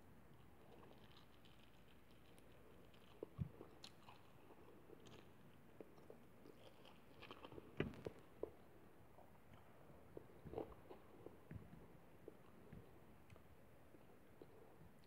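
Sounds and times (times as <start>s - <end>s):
chewing and mouth sounds: 0.3s - 14.8s.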